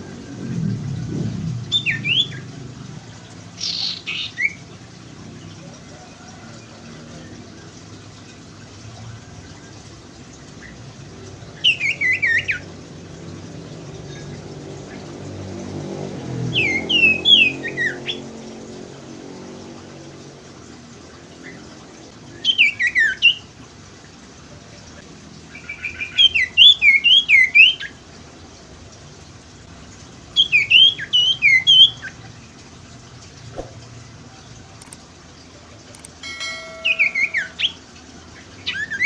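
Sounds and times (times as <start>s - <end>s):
bird singing high sweeping chirps: 36.2s - 37.8s.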